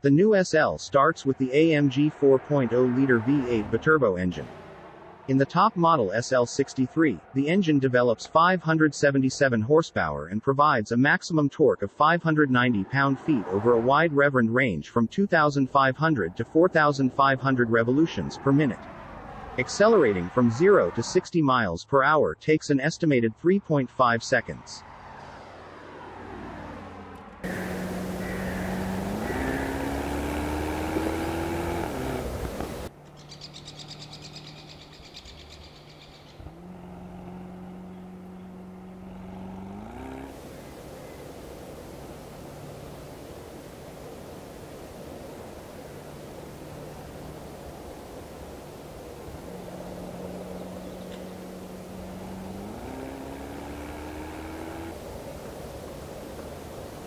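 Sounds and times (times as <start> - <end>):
car engine accelerating: 1.1 - 6.1, 24.8 - 57.0.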